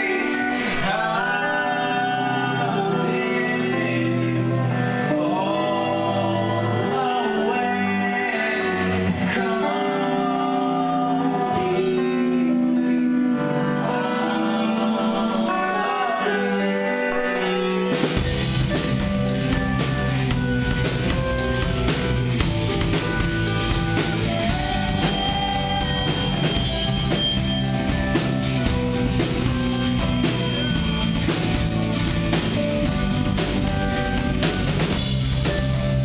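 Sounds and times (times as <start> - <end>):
man singing: 0.0 - 17.7
bass guitar: 0.0 - 36.0
drums: 0.0 - 36.0.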